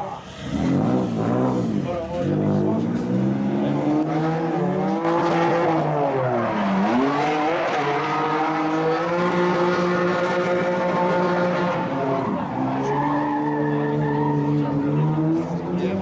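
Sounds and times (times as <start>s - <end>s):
car engine revving hard: 0.0s - 16.0s.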